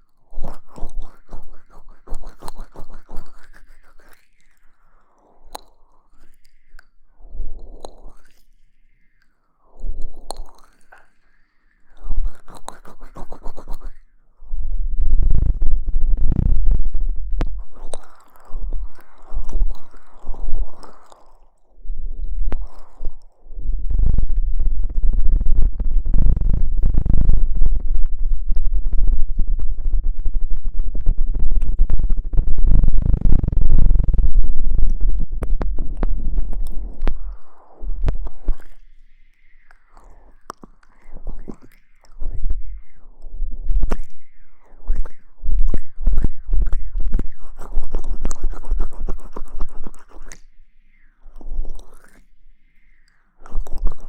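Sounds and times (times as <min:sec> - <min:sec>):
scratching on microphone: 0:12.0 - 0:14.0, 0:14.9 - 0:21.4, 0:22.3 - 0:38.8, 0:40.0 - 0:50.4, 0:53.5 - 0:54.0
microphone handling rumble: 0:14.8 - 0:17.8, 0:23.6 - 0:37.3.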